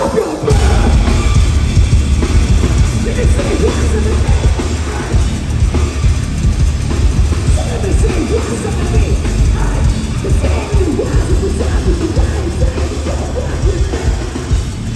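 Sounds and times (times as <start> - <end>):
fast drumming: 0.0 - 14.9
heavy metal band playing live: 0.0 - 14.9.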